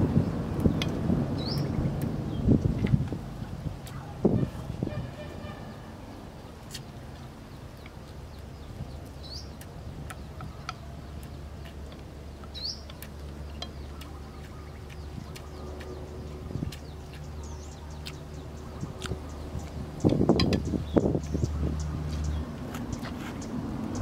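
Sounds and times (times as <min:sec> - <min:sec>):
bird chirps: 0:12.4 - 0:24.0.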